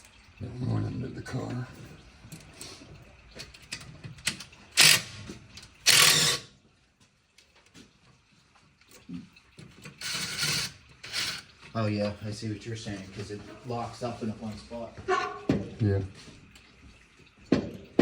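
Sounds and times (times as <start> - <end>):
socket ratchet clicking: 4.8 - 5.1, 5.9 - 6.4.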